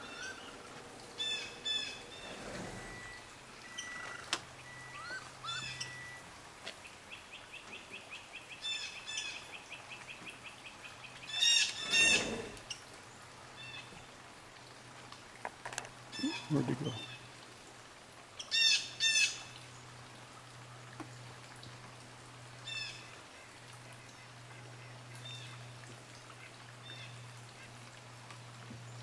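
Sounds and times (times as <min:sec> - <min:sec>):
birds chirping and calling: 0:00.0 - 0:06.2, 0:16.1 - 0:17.3.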